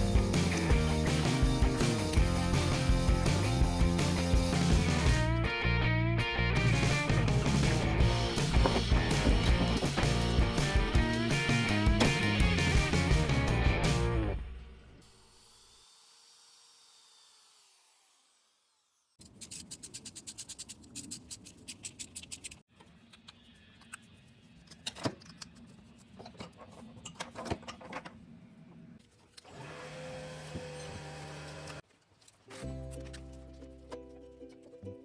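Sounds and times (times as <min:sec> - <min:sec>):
music: 0:00.0 - 0:14.8, 0:32.5 - 0:35.0.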